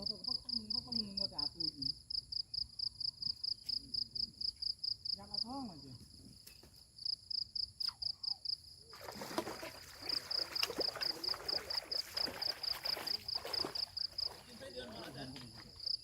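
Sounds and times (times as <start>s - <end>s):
insect chirping: 0.0s - 16.0s.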